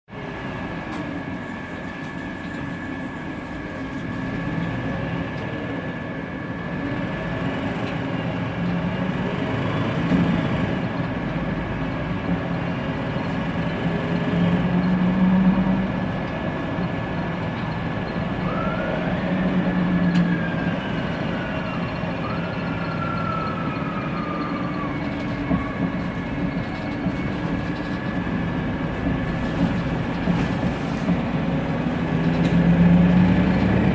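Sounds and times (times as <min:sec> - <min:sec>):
bus engine and fan droning: 0:00.1 - 0:33.9
gearbox whistling: 0:18.0 - 0:28.3.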